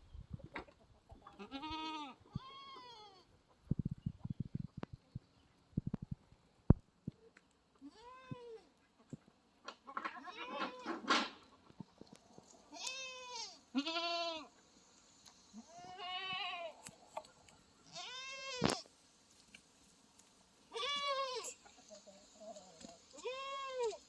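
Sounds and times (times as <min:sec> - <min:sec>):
goats bleating: 0:01.4 - 0:03.2, 0:12.7 - 0:14.5, 0:15.6 - 0:16.8, 0:17.9 - 0:18.8, 0:20.7 - 0:21.6, 0:23.1 - 0:24.0.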